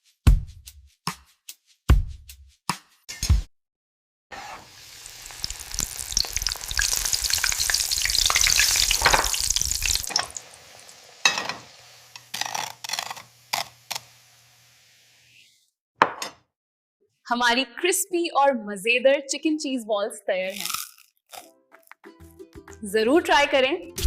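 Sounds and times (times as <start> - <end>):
food sizzling in hot oil: 4.4 - 15.6.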